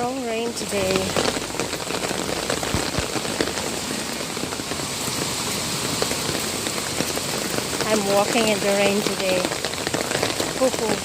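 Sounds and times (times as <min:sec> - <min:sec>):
heavy rain on hard surfaces: 0:00.0 - 0:11.0.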